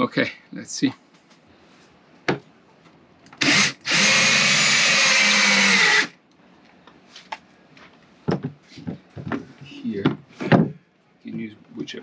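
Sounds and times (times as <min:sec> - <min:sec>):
power drill boring: 0:03.4 - 0:06.1.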